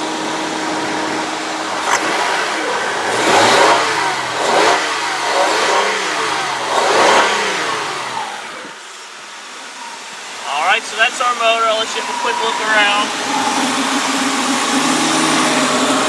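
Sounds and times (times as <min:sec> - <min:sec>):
car engine revving and idling: 0:00.0 - 0:16.0.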